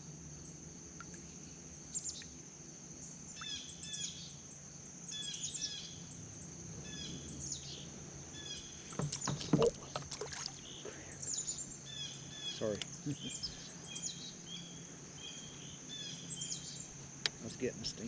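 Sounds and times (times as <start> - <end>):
steady high buzz: 0.0 - 18.0
small birds chirping: 0.4 - 18.0
fishing gear knocking and clattering: 8.8 - 10.5.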